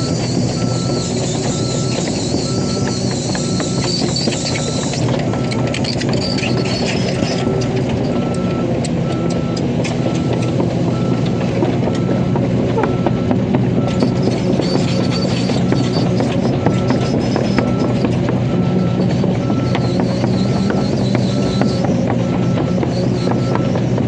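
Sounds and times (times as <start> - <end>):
excavator engine running: 0.0 - 24.0.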